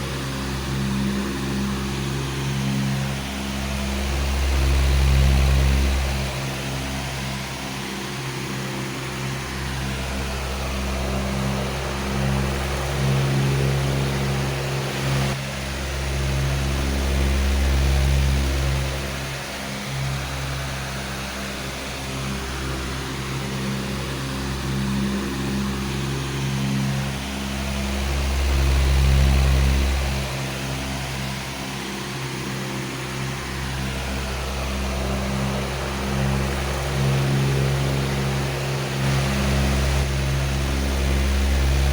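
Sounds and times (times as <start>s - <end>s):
electric fan motor hum: 0.0s - 41.9s
rush of moving air: 33.0s - 41.9s.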